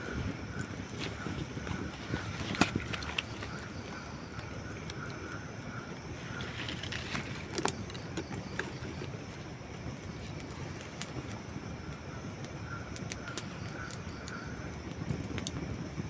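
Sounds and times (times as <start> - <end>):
campfire burning with crackles: 0.0 - 16.0.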